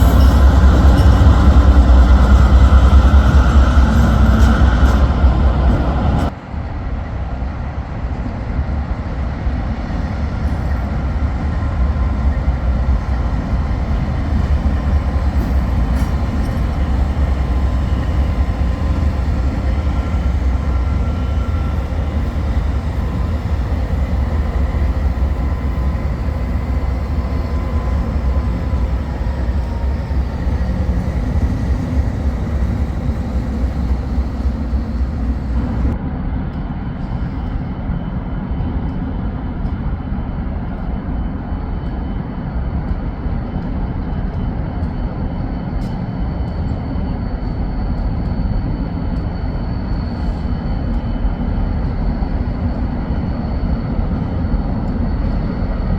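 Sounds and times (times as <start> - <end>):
locomotives rumbling: 10.1 - 36.0.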